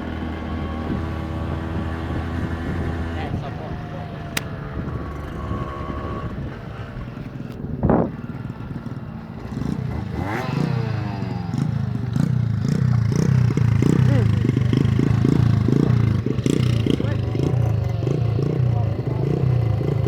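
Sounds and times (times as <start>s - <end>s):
small motorcycle engine running: 0.0s - 20.0s
sharp click: 4.4s - 4.6s.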